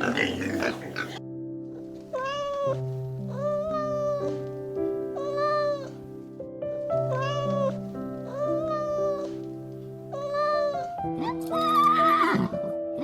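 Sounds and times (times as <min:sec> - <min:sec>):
soft background music: 0:00.0 - 0:13.0
cat meowing: 0:02.1 - 0:04.4, 0:05.2 - 0:06.0, 0:07.0 - 0:09.4, 0:10.2 - 0:12.5.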